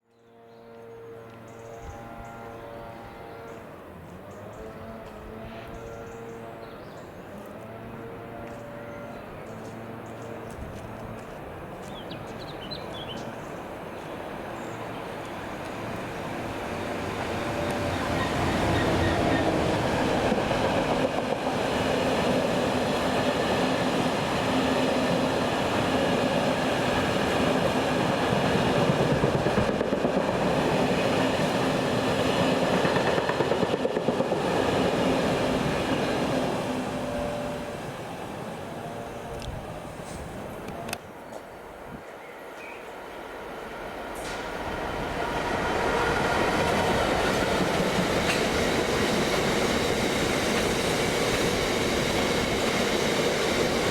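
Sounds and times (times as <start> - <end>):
freight train passing: 0.2 - 53.9
train engine hum: 0.2 - 53.9
wheels clicking over rail joints: 46.7 - 51.5.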